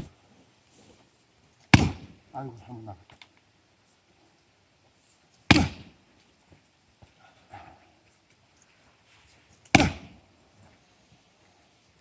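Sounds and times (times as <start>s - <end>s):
axe chopping log: 1.7s - 2.2s, 5.5s - 6.0s, 9.7s - 10.2s.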